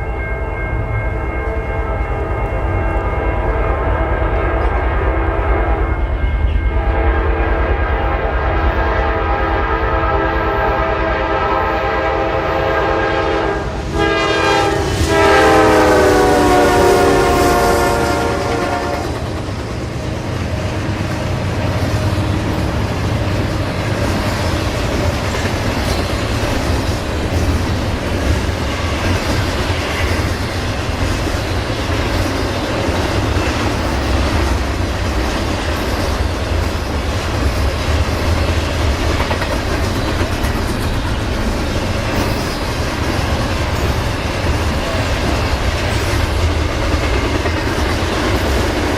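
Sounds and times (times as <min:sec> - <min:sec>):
train rumble: 0:00.0 - 0:48.9
locomotive horn: 0:03.2 - 0:19.3
wheels clattering on rail joints: 0:18.8 - 0:48.9.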